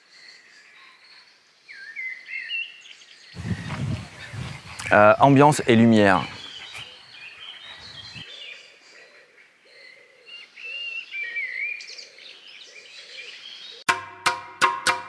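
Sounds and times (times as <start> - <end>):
small birds chirping: 0.2 - 13.9
music with percussive hits: 13.9 - 15.0.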